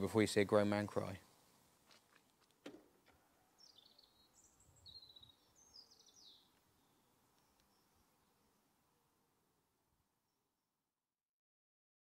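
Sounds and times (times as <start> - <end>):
faint bird song: 3.1 - 11.0.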